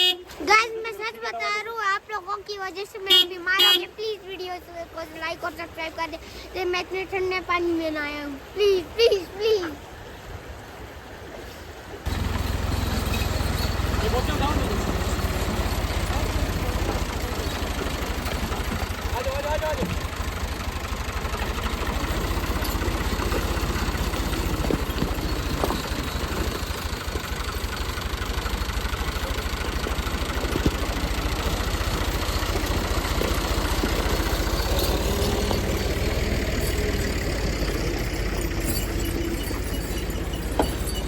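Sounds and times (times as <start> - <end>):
car engine idling: 12.1 - 41.0.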